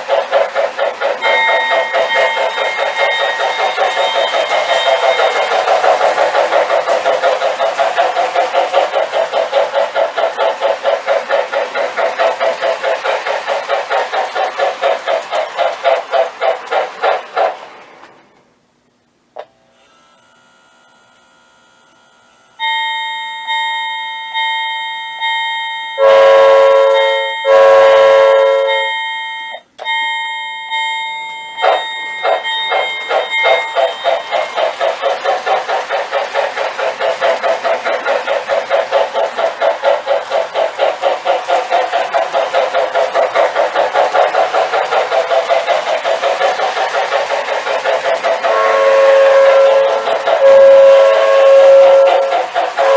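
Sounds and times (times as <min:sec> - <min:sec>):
model train rhythmic running sound: 0:00.0 - 0:52.9
bell ringing: 0:01.2 - 0:07.6, 0:28.6 - 0:34.8
long whistle blasts: 0:26.0 - 0:29.3, 0:48.5 - 0:52.9.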